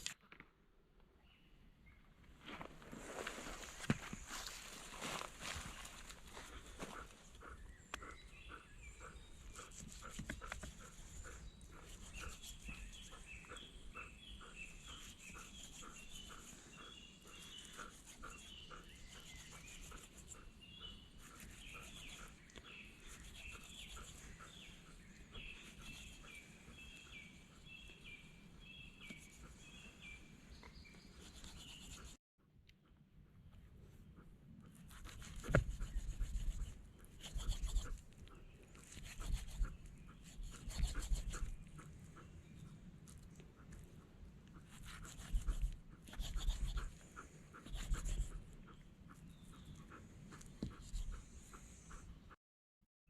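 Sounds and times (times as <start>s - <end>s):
faint repeating animal sound: 31.2s - 52.4s.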